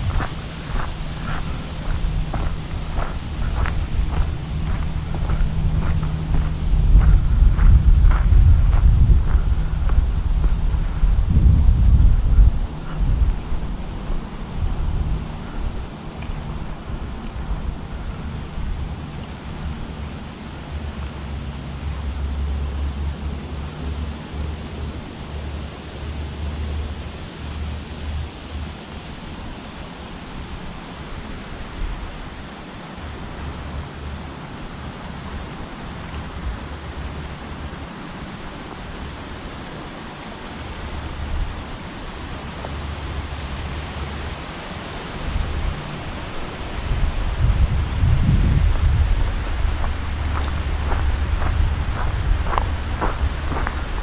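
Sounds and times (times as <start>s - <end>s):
wind buffeting microphone: 0.0s - 24.9s, 40.6s - 54.0s.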